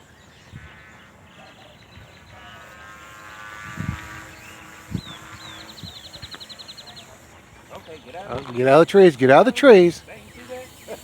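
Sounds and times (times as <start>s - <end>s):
rc helicopter motor whine: 0.0s - 11.0s
bird chirping: 3.8s - 11.0s.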